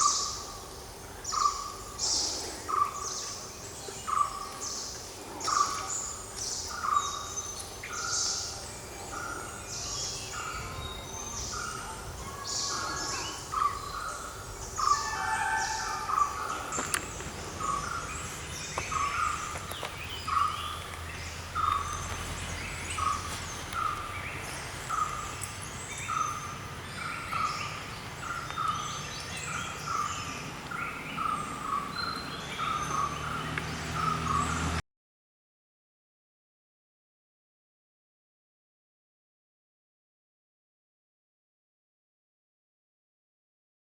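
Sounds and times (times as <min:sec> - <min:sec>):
higher bird chirps: 0:00.0 - 0:34.7.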